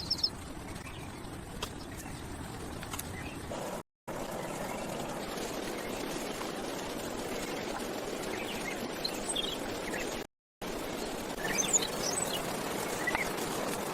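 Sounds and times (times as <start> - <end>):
high bird chirps: 0.0 - 1.2, 11.4 - 13.3
outdoor background noise: 0.0 - 13.9.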